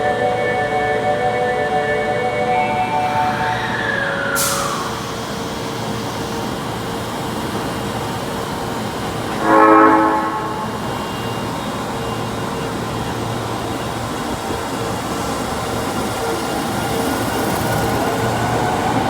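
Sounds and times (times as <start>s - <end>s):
train running noise: 0.0s - 19.0s
train horn blast: 9.4s - 11.0s.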